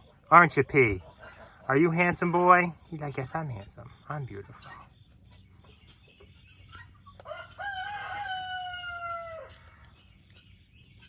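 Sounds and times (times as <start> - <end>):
rooster crowing: 7.2 - 9.8.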